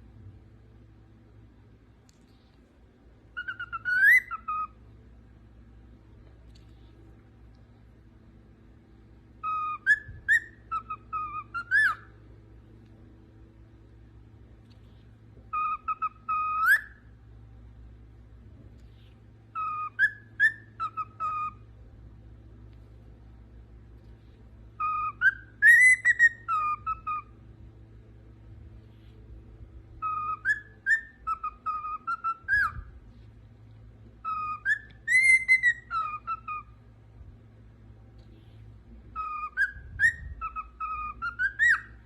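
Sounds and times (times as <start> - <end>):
parrot whistling a tune: 3.3 - 4.8, 9.4 - 12.2, 15.5 - 17.1, 19.5 - 21.6, 24.8 - 27.4, 30.0 - 32.9, 34.2 - 36.8, 39.1 - 42.0.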